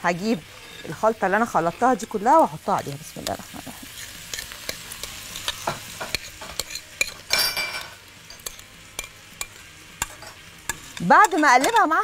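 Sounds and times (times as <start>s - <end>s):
food sizzling in a wok: 0.0s - 12.0s
metal spoon scraping and clicking: 3.2s - 11.9s.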